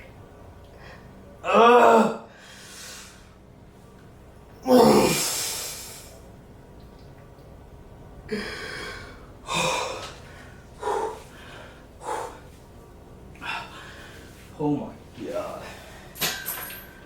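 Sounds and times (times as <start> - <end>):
man breathing hard: 8.3 - 12.5, 13.4 - 14.4.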